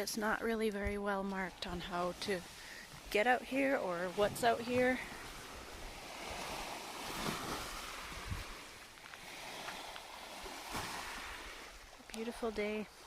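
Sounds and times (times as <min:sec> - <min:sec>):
wind buffeting microphone: 0:00.6 - 0:12.8
wind rushing: 0:05.2 - 0:11.8.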